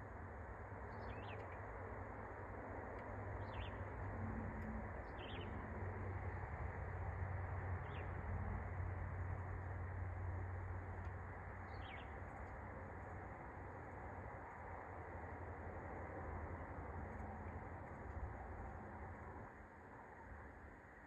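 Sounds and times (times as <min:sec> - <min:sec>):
low background hum: 0:00.0 - 0:21.0
bird chirps: 0:03.4 - 0:03.8, 0:05.1 - 0:05.5, 0:11.7 - 0:12.1.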